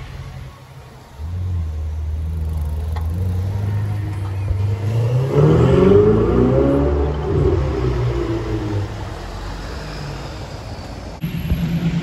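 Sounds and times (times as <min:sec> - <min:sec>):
sports car engine revving: 0:01.2 - 0:10.6.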